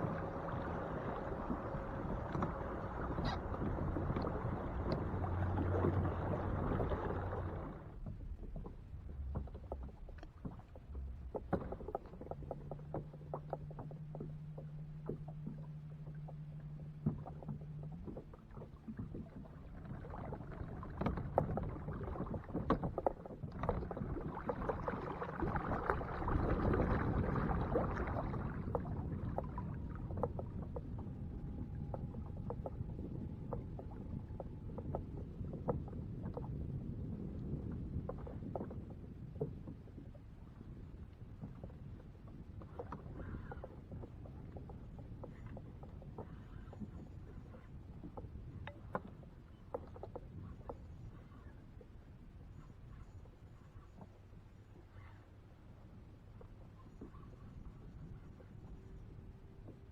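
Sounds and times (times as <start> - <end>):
rushing water noise: 0.0 - 7.9
steady low hum: 0.0 - 8.1, 12.4 - 38.0.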